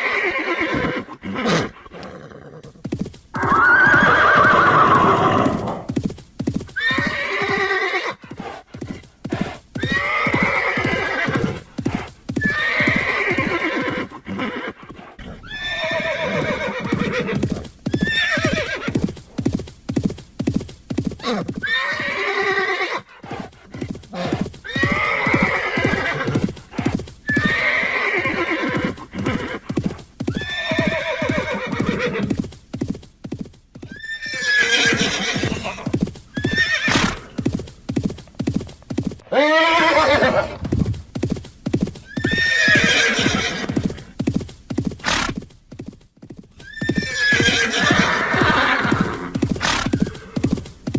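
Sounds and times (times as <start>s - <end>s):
horse neighing: 0.0s - 2.8s, 3.4s - 6.0s, 6.8s - 8.2s, 9.8s - 19.0s, 21.2s - 23.1s, 24.0s - 32.4s, 33.9s - 37.4s, 39.3s - 40.7s, 42.0s - 44.0s, 46.6s - 50.7s
clip-clop of hooves: 0.0s - 50.9s.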